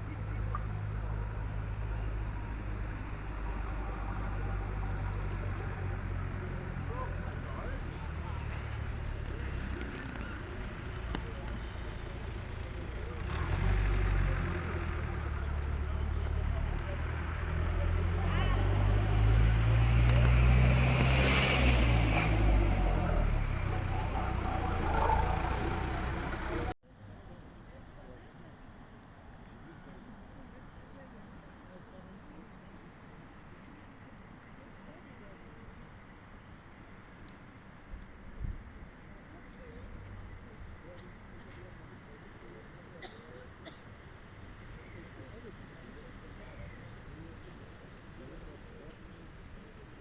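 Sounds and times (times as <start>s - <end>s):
vehicle engine drone: 0.0s - 26.8s.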